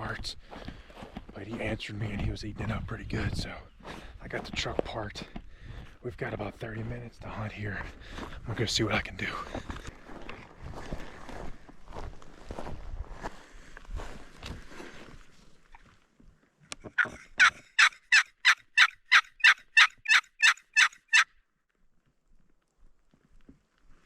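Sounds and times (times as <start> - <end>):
footsteps on ground: 0.0 - 16.4
turkey yelps: 16.9 - 21.3.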